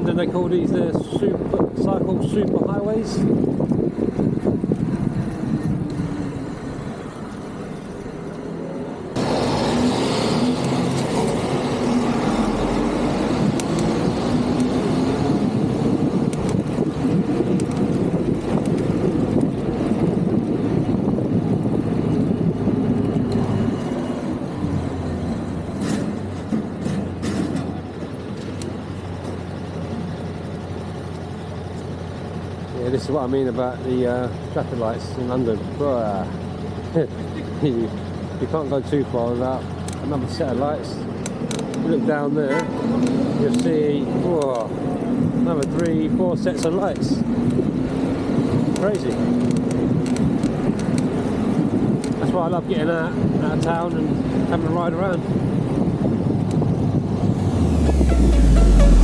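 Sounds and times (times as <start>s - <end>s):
motor vehicles passing: 2.9s - 52.1s, 53.3s - 59.0s
low engine hum: 3.2s - 32.8s, 55.2s - 59.0s.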